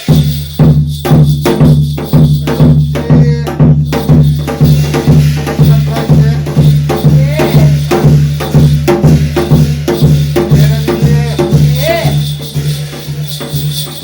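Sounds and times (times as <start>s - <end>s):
drum and metal percussion beat: 0.0s - 14.0s.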